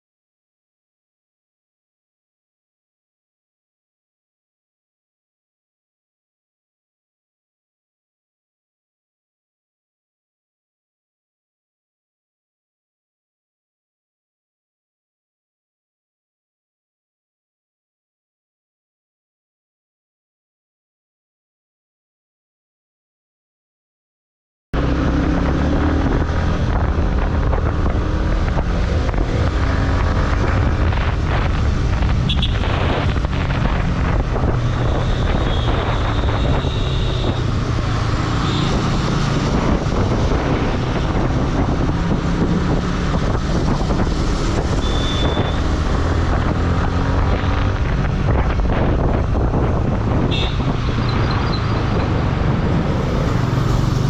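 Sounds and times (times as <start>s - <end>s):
wind noise on microphone: 24.8s - 54.0s
motorcycle engine running: 24.9s - 54.0s
short high beeps: 44.8s - 45.7s.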